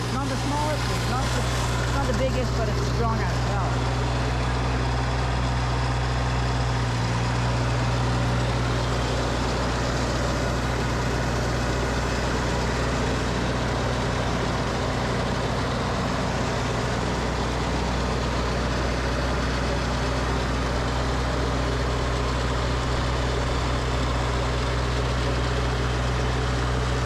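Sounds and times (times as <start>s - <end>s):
snowblower rushing noise: 0.0s - 27.0s
tractor engine running: 0.0s - 27.0s.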